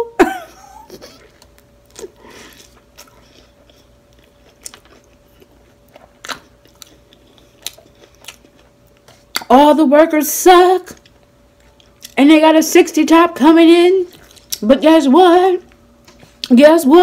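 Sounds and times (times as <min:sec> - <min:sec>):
faint steady hum: 0:00.0 - 0:17.0
chewing with wet clicks and smacks: 0:01.3 - 0:09.5, 0:11.0 - 0:12.2, 0:14.1 - 0:14.6.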